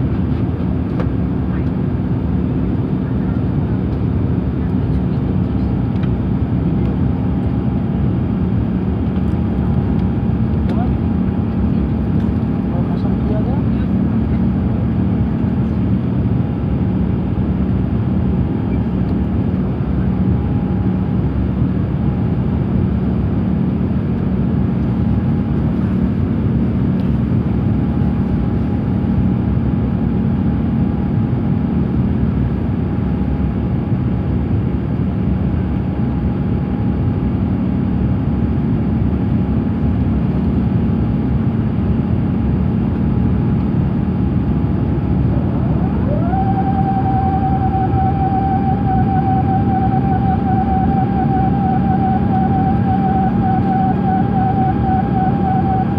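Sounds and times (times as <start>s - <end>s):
airplane cabin engine roar: 0.0s - 55.9s
low steady hum: 43.4s - 55.9s
tone gliding upward: 45.2s - 55.9s.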